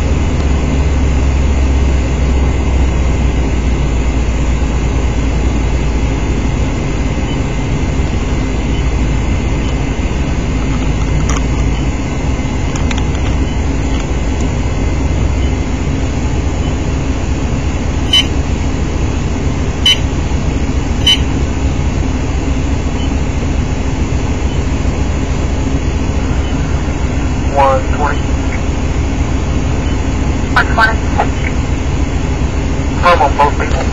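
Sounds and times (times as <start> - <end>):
vehicle engine rumbling: 0.0 - 33.9
short high beeps: 18.1 - 18.3, 19.8 - 20.0, 21.0 - 21.3.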